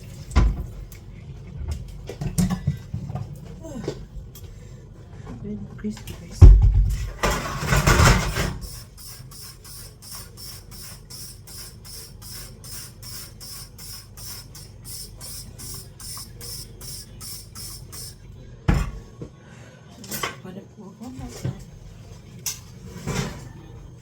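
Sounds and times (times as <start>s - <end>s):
pressure cooker valve hissing: 8.1s - 18.3s.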